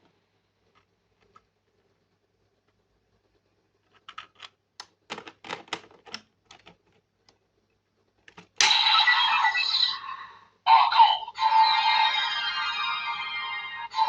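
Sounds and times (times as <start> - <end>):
toy electronic sound effect: 8.6 - 14.0.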